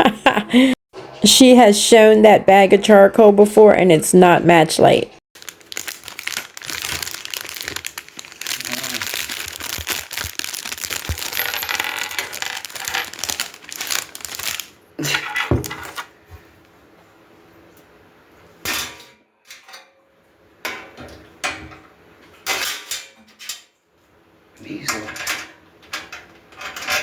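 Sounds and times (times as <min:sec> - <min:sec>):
packaging crinkling: 0:05.4 - 0:14.8.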